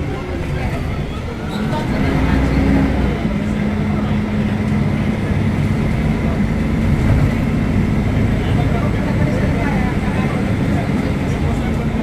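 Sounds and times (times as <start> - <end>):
bus engine droning with whine: 0.0 - 12.0.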